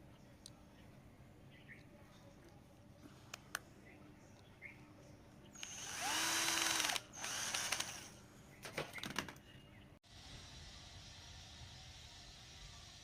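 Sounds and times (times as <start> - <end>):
power drill spinning: 5.6 - 8.2.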